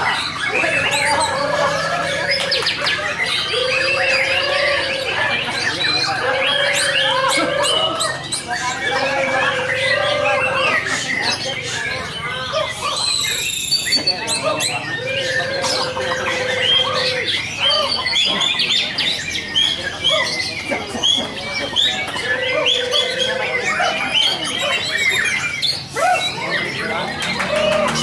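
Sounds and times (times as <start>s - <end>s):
birds chirping and squawking: 0.0s - 28.0s
long low whistled bird notes: 0.1s - 20.1s.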